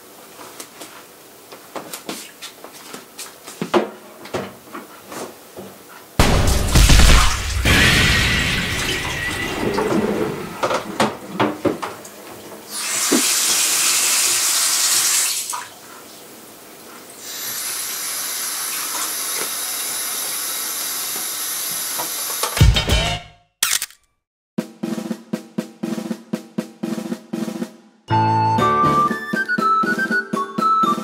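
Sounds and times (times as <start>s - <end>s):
knocks and clatter at sink: 10.6s - 12.0s.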